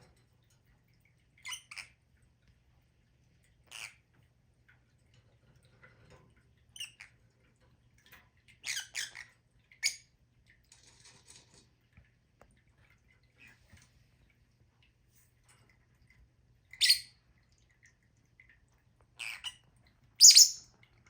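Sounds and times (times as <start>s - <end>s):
lovebirds chirping: 20.2s - 20.7s.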